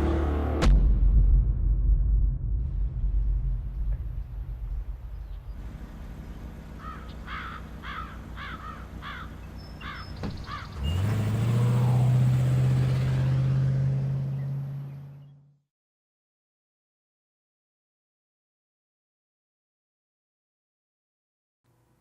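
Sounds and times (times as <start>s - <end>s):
loud low-pitched drone: 0.0s - 6.0s
low rumble: 0.6s - 6.4s
bird calling: 6.2s - 11.1s.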